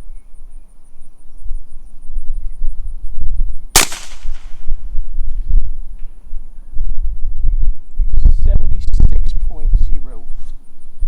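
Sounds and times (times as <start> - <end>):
suppressed gunshot: 3.8 - 4.8.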